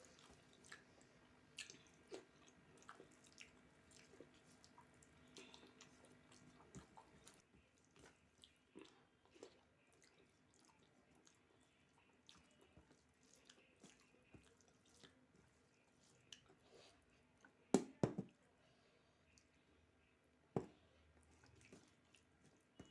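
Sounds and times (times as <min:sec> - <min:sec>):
chewing and wet mouth sounds: 0:00.0 - 0:17.7, 0:20.6 - 0:22.9.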